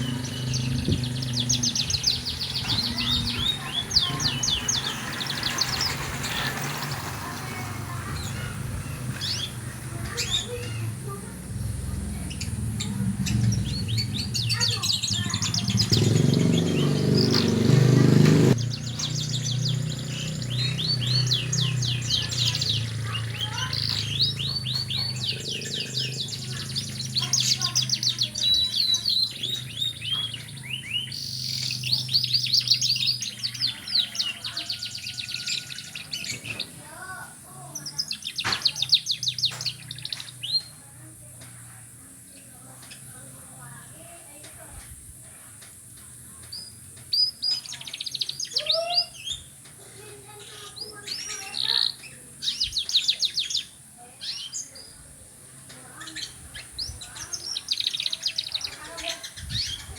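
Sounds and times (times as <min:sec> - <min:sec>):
canary singing trills: 0:00.0 - 0:59.9
low rumble: 0:10.9 - 0:16.0.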